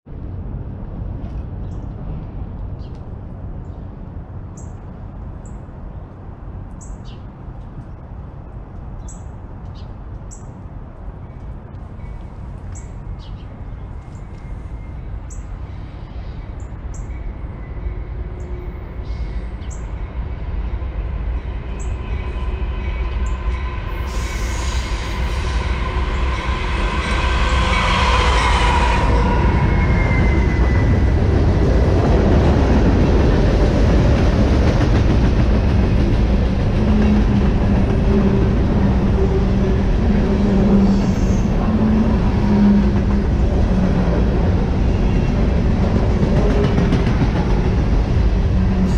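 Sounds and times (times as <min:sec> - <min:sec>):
train rumble: 0:00.1 - 0:48.9
birds chirping: 0:11.2 - 0:20.1.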